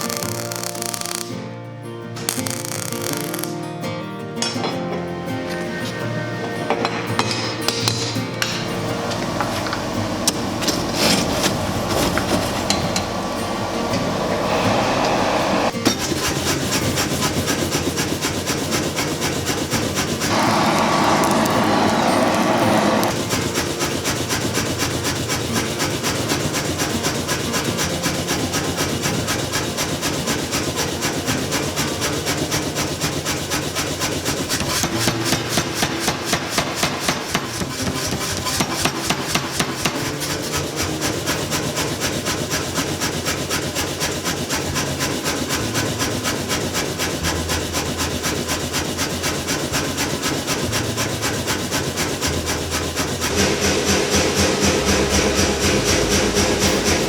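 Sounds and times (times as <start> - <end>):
metal rasping strokes: 0.0 - 1.4, 2.1 - 3.7, 4.4 - 57.0
loud metal strikes: 53.2 - 57.0.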